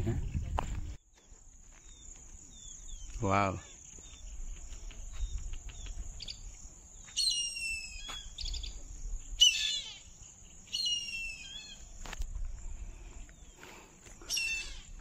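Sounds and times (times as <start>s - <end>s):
bird calling: 1.8s - 12.1s, 13.4s - 15.0s
high-pitched insect drone: 1.8s - 12.8s.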